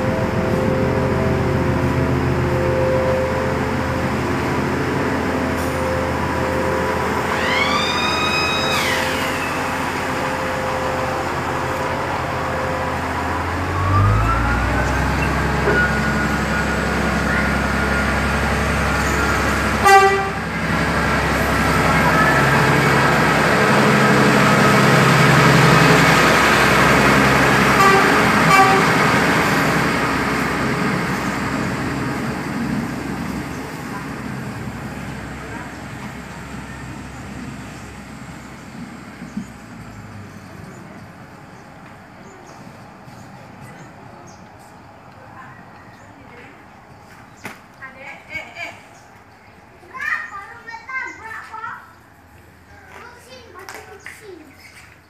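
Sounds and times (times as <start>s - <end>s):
diesel train engine: 0.0s - 55.0s
train horn blast: 19.2s - 20.7s, 21.4s - 29.7s.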